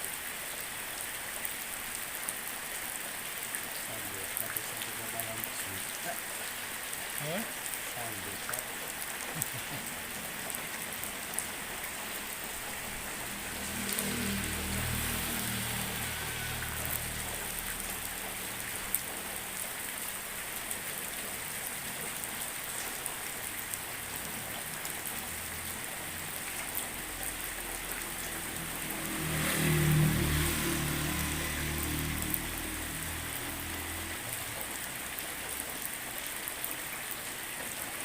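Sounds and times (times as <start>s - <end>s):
drizzling rain: 0.0s - 38.0s
small drip ticks: 16.5s - 30.3s.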